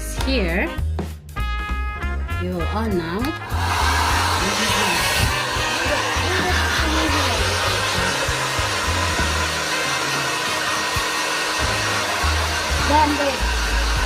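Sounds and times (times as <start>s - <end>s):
hair dryer running: 3.3s - 14.0s.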